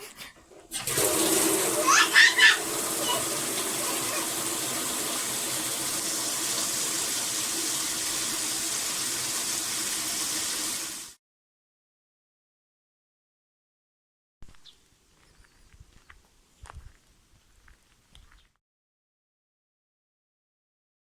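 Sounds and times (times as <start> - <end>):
running water rushing: 0.6 - 11.2.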